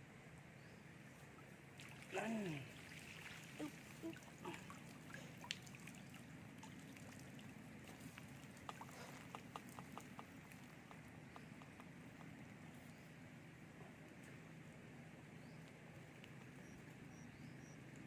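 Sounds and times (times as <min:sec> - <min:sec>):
water dripping off a net: 0:01.8 - 0:11.1.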